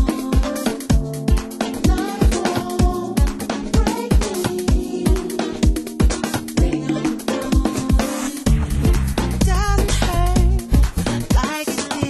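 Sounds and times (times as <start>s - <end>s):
house music: 0.0s - 12.0s
kick drum: 7.6s - 12.0s.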